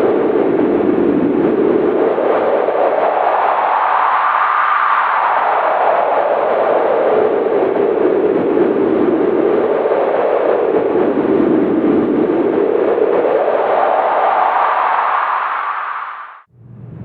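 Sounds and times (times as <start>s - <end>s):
wind howling: 0.0s - 17.0s.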